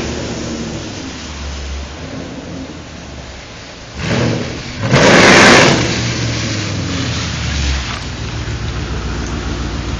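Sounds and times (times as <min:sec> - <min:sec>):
car engine revving: 0:03.9 - 0:09.9.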